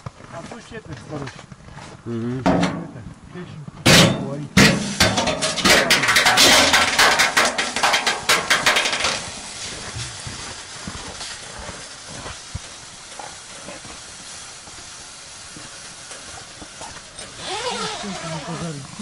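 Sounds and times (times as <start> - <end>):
fish frying in a pan: 6.0 - 17.9.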